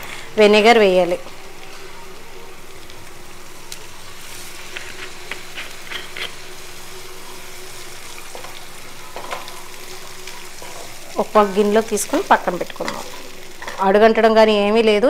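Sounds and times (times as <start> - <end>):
paste sizzling in hot oil: 1.3 - 14.0
wooden spatula scraping a pan: 4.7 - 6.5.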